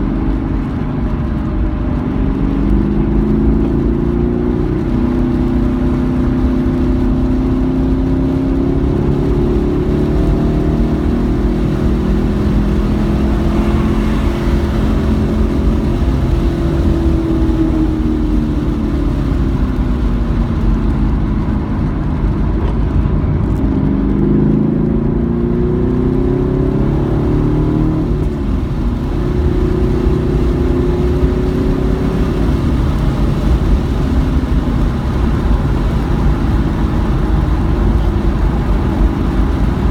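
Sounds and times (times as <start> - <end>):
race car engine accelerating: 0.0 - 39.9
road and tyre rumble: 0.0 - 39.9.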